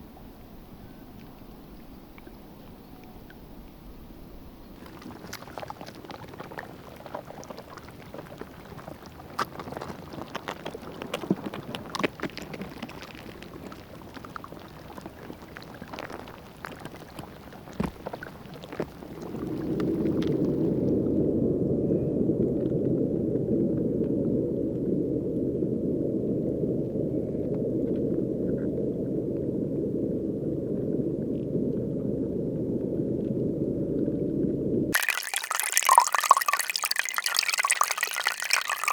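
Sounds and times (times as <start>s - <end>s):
river water lapping: 4.8s - 20.8s, 35.0s - 38.9s
muffled rush of water: 4.8s - 21.0s, 35.0s - 38.9s.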